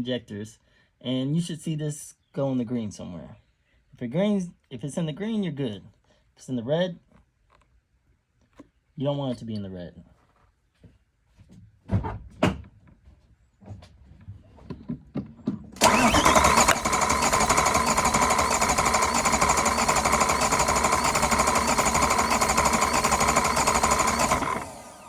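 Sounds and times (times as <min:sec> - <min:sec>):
engine cranking on starter: 0:15.8 - 0:25.0.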